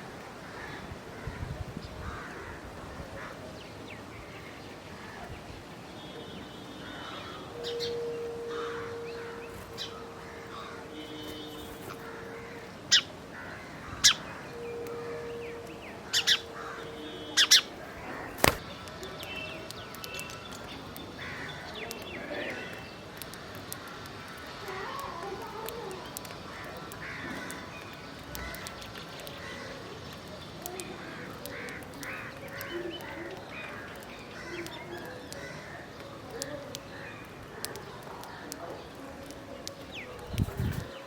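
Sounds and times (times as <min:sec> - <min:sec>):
birds chirping: 0:00.0 - 0:41.0
crows cawing: 0:00.4 - 0:03.5, 0:06.8 - 0:18.6, 0:21.2 - 0:30.0, 0:30.8 - 0:38.6.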